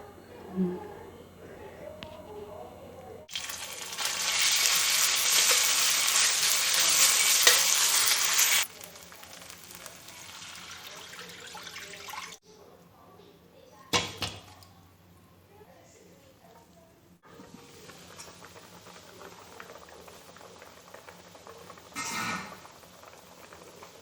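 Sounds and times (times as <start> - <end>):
loud sizzling: 3.3 - 11.4.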